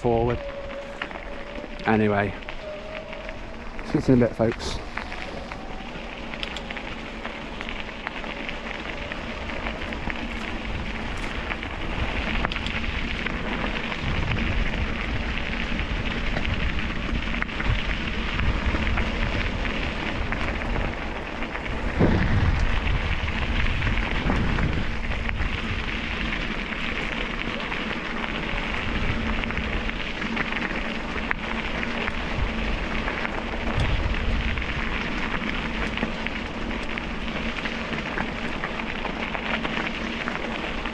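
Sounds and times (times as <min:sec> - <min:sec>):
wheels rolling over gravel: 0:00.0 - 0:40.9
wind rumbling on microphone: 0:00.0 - 0:40.9.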